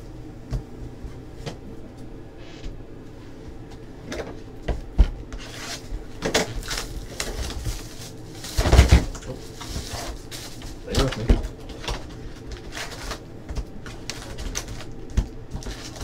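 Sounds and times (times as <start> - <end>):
pack wrappers rustling: 5.7 - 16.0.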